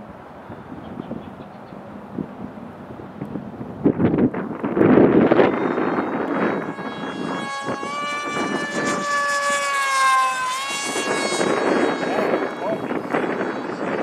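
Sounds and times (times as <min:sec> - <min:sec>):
wind buffeting microphone: 0:00.0 - 0:14.0
model plane motor whining: 0:04.8 - 0:14.0.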